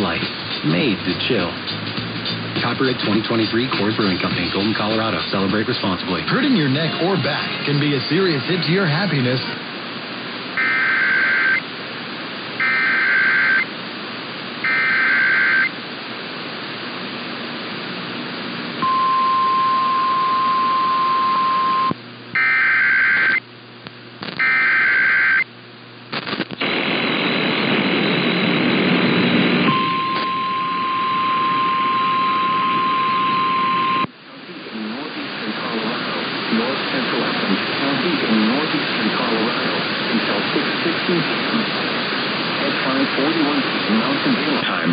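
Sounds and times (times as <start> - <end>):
radio static: 0.0 - 1.6, 2.6 - 44.9
steady attention tone: 10.6 - 11.7, 12.6 - 13.7, 14.6 - 15.8, 18.8 - 23.5, 28.9 - 34.1.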